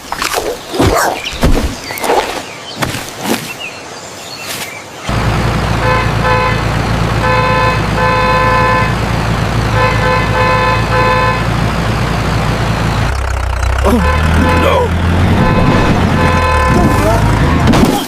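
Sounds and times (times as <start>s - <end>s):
engine rumbling: 5.1s - 18.0s
horn tooting: 5.7s - 11.7s, 13.4s - 17.6s.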